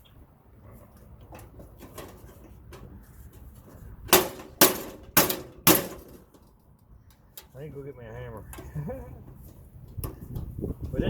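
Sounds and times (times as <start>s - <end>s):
light clicking and prying: 0.9s - 7.6s, 8.4s - 11.0s
tool striking sheet metal: 4.1s - 6.3s.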